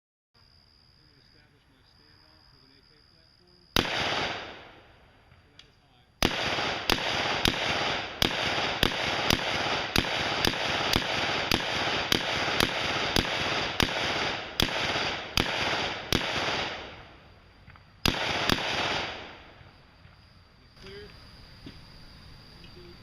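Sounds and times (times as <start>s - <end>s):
gunshots echoing: 3.8s - 5.4s, 6.2s - 17.2s, 18.0s - 19.6s.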